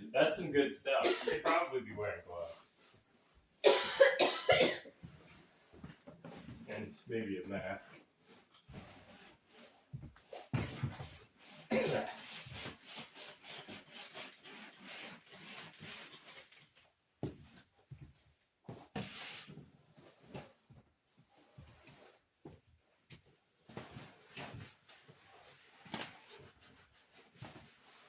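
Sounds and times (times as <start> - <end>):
person coughing: 1.0 - 1.8, 3.6 - 5.0, 11.7 - 12.2
scratchy rubbing and knocking: 8.7 - 16.8.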